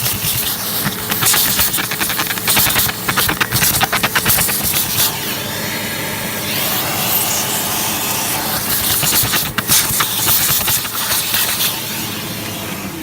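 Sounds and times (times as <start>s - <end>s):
sharp clicks and rattles: 0.0s - 5.1s, 8.7s - 11.7s
vacuum cleaner whooshing hiss: 0.0s - 13.0s.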